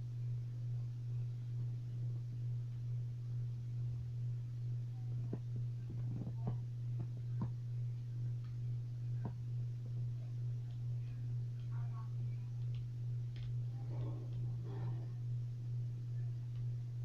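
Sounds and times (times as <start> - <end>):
low electrical hum: 0.0 - 17.0
faint clicks and taps: 5.2 - 7.6, 9.2 - 10.0, 10.6 - 15.0.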